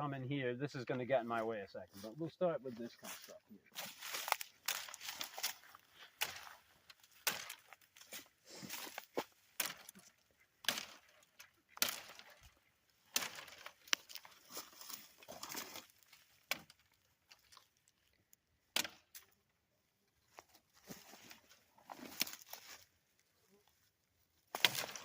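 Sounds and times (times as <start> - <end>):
twigs rustling: 1.3 - 19.5, 20.1 - 25.0
knife chopping branches: 3.8 - 7.9, 8.7 - 11.2, 11.8 - 12.5, 13.1 - 14.3, 15.4 - 16.9, 18.7 - 19.3, 24.5 - 25.0.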